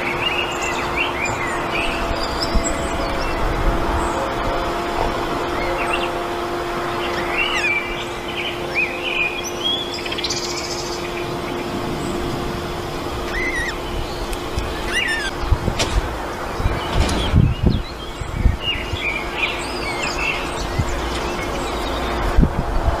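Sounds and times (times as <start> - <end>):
low hum and rumble: 0.0 - 23.0
buzzy bird trill: 5.5 - 15.6
small birds chirping: 6.8 - 22.4.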